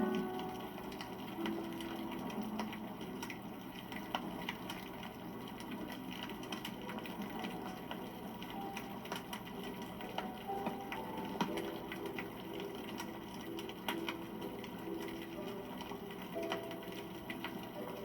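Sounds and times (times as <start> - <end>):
wood campfire crackling: 0.0 - 18.0.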